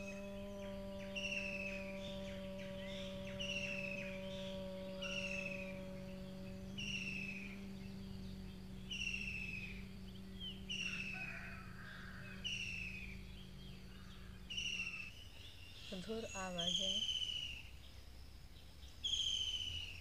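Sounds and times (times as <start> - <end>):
bird whistled call: 0.0 - 5.8, 6.8 - 7.9, 14.5 - 17.7, 19.0 - 20.0
steady low hum: 0.0 - 20.0.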